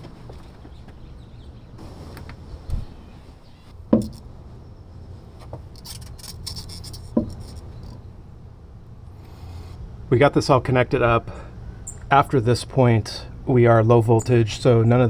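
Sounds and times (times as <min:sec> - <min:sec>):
hands rubbing and rustling: 0:01.8 - 0:03.8
sharp knocks: 0:03.9 - 0:04.2
dull thump: 0:03.9 - 0:04.3.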